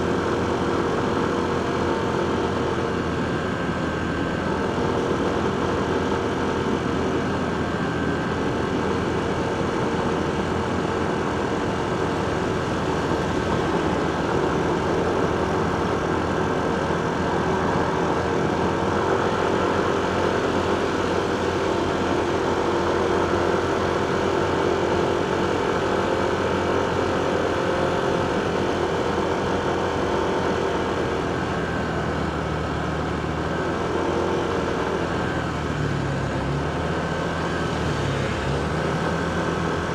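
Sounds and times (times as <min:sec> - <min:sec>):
road traffic: 0:00.0 - 0:39.9.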